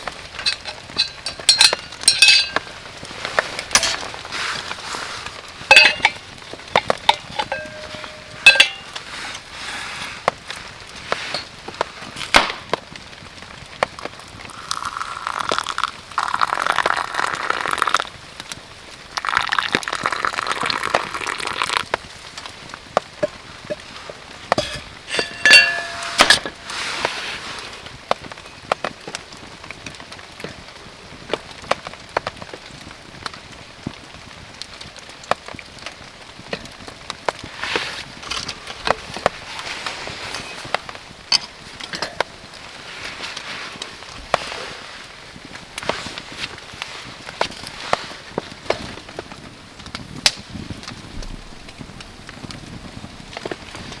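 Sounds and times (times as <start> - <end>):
hard items clinking and knocking: 0.4 - 12.7, 23.1 - 27.2.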